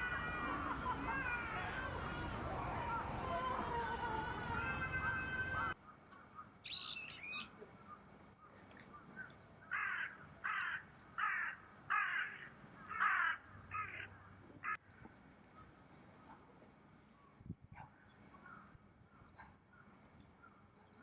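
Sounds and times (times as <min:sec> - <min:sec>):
harsh bird calls: 0:00.0 - 0:05.8
bird chirp: 0:05.5 - 0:08.0.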